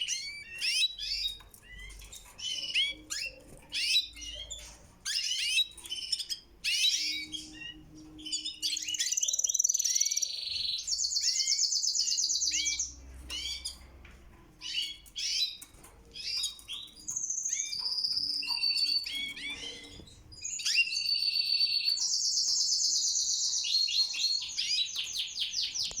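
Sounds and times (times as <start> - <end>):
canaries singing: 0.0 - 26.0.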